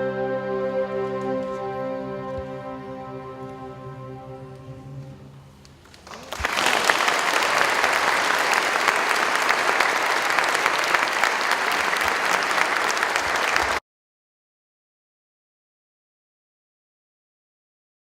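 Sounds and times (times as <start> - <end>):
music: 0.0 - 5.8
audience applause: 5.8 - 13.8.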